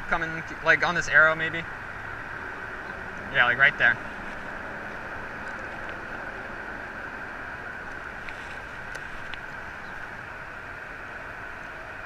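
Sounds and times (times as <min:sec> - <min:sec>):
constant hiss: 0:00.0 - 0:12.0
truck engine idling: 0:00.0 - 0:12.0.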